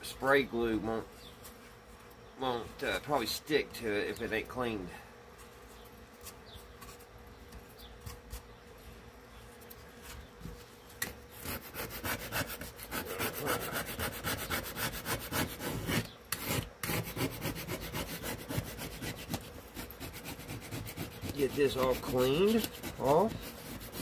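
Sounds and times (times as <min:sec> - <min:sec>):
faint steady hum: 0:00.0 - 0:24.0
scraping on wood: 0:09.8 - 0:24.0.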